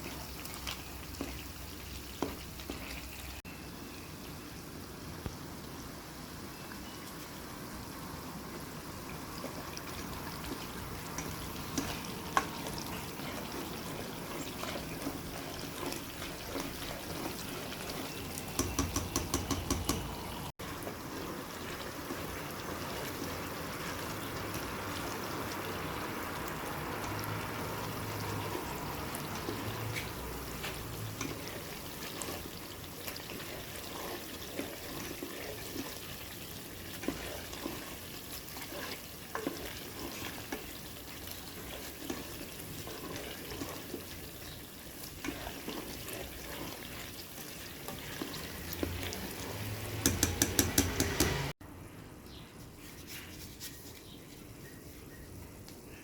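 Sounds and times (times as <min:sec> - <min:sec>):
food sizzling in oil: 0:00.0 - 0:51.6
utensil clicking against pan: 0:18.4 - 0:20.2, 0:49.9 - 0:51.5.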